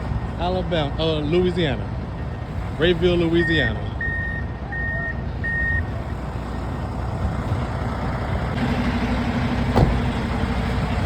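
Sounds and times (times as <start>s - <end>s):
low engine hum: 0.0s - 11.0s
low vehicle rumble: 0.0s - 11.0s
vehicle backup alarm beeping: 3.2s - 5.9s.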